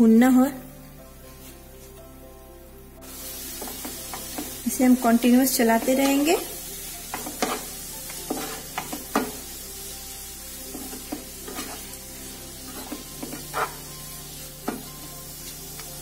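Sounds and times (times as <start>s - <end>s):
food sizzling in a pan: 3.0s - 16.0s
wooden spatula scraping a pan: 3.5s - 9.4s, 10.7s - 15.2s.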